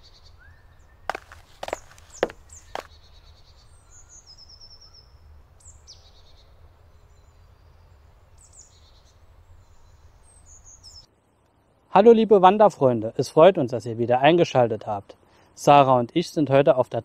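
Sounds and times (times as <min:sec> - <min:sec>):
songbirds singing: 0:00.0 - 0:11.9
footstep thuds: 0:01.1 - 0:02.9.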